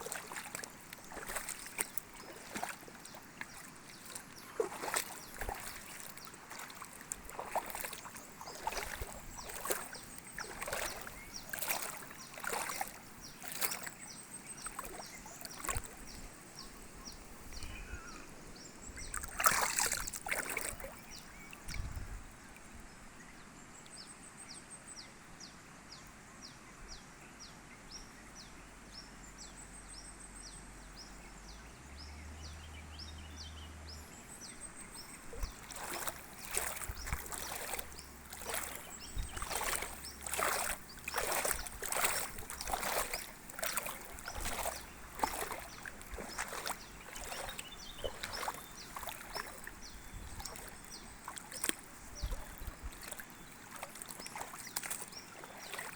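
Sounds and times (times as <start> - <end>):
loud splashes in water: 0.0 - 13.9, 14.6 - 16.1, 19.0 - 21.2, 35.3 - 55.9
steady water noise: 0.0 - 24.1, 29.5 - 55.9.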